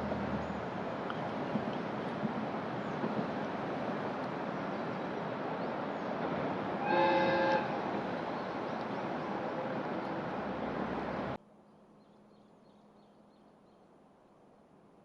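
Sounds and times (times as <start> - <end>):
train horn blast: 6.8 - 7.9.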